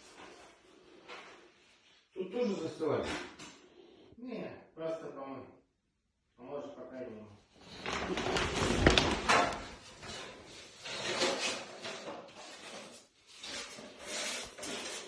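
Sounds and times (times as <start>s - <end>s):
rough sliding noises: 9.9s - 15.0s.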